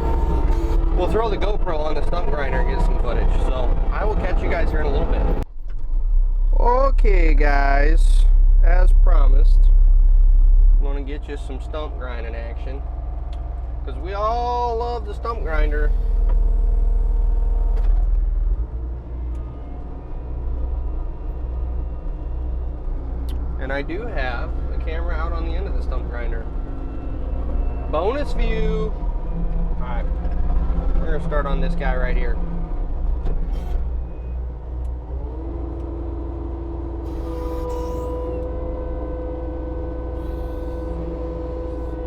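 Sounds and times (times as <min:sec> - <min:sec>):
stump grinder whine: 0:00.0 - 0:05.4, 0:35.1 - 0:42.0
diesel engine low rumble: 0:00.0 - 0:42.0
higher whine: 0:00.0 - 0:42.0.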